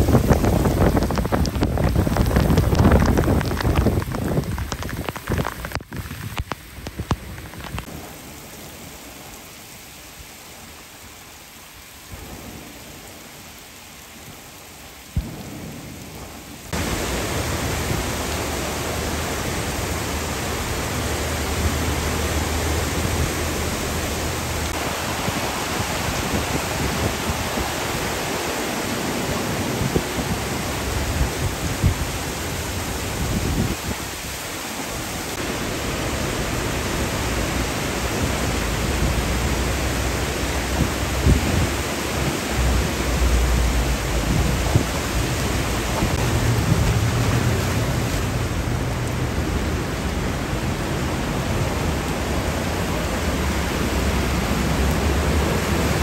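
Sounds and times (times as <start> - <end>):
heavy rain on floodwater: 0.0 - 56.0
vehicles splashing through water: 16.7 - 31.5, 35.3 - 56.0.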